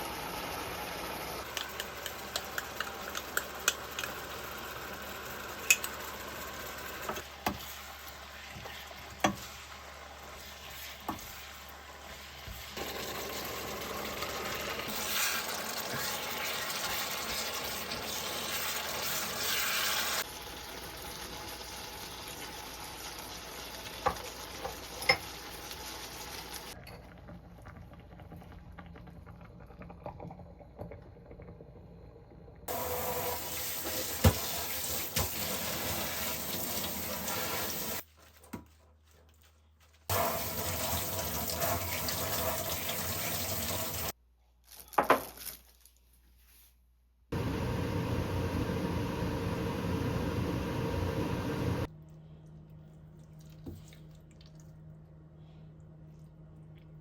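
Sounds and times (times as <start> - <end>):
food sizzling in a pan: 0.0 - 26.8, 32.7 - 38.0, 40.1 - 44.2.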